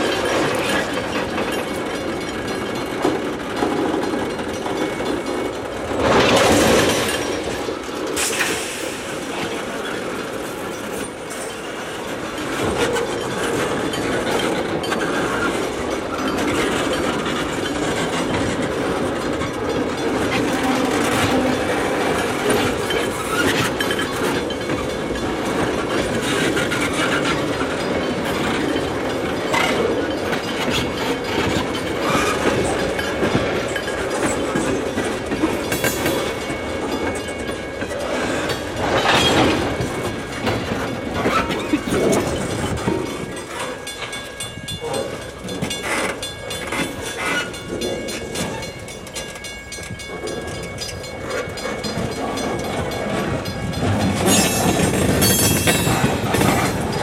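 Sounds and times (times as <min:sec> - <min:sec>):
train rolling rumble: 0:00.0 - 0:57.0
wheels clacking over rail joints: 0:00.0 - 0:57.0.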